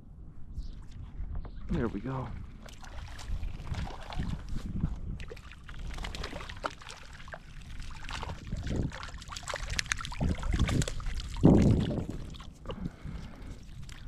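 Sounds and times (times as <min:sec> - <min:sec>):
wind rumble on microphone: 0:00.0 - 0:14.0
fish splashing in water: 0:02.5 - 0:04.6, 0:05.2 - 0:14.0.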